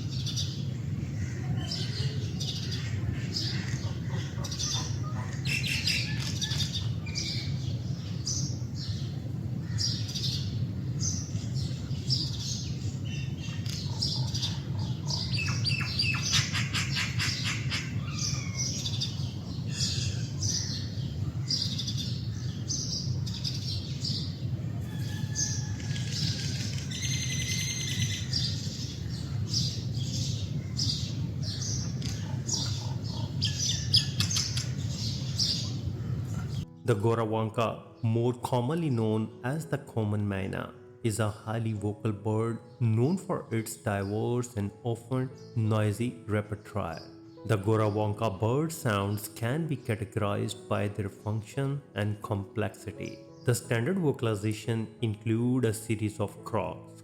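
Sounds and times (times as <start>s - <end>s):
myna chirping and squawking: 0.0s - 36.7s.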